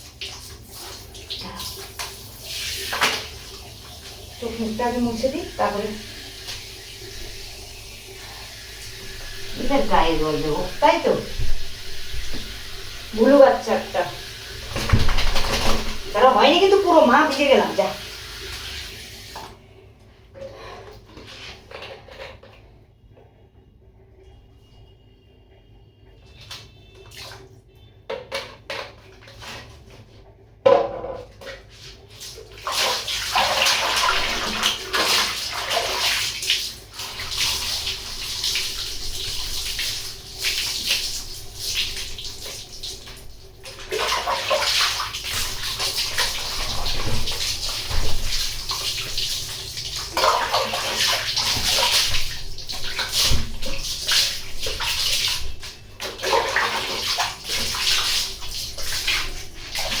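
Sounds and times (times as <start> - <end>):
water splashing over a dog: 9.4 - 18.0, 32.2 - 60.0.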